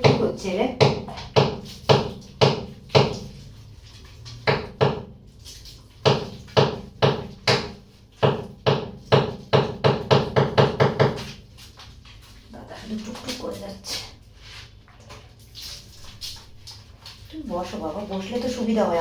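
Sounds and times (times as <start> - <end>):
sharp knocking: 6.1 - 11.2.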